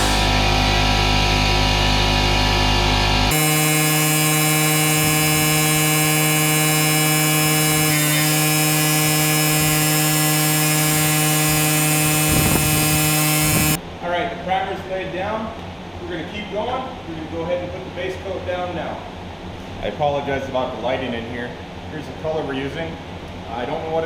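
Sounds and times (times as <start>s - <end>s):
machine motor humming: 0.0s - 0.5s, 3.3s - 13.8s.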